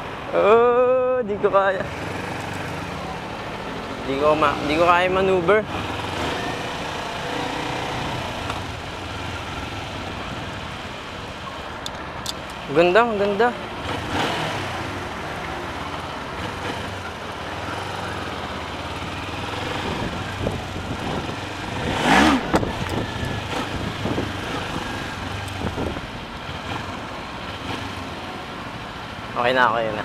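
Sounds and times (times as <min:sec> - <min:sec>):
motorcycle engine running: 0:01.9 - 0:11.6, 0:13.4 - 0:28.4.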